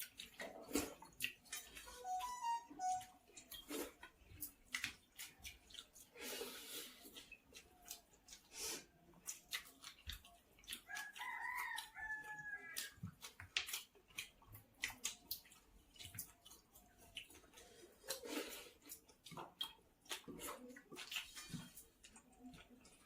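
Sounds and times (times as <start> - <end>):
wet smacking of hand-eating rice: 0.0 - 1.9, 3.0 - 23.0
rooster crowing: 10.9 - 12.8.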